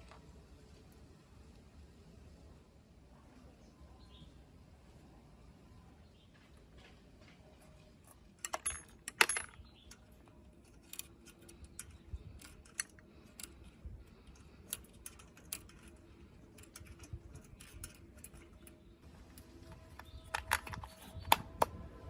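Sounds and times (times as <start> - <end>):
metal parts clinking: 8.1 - 21.4.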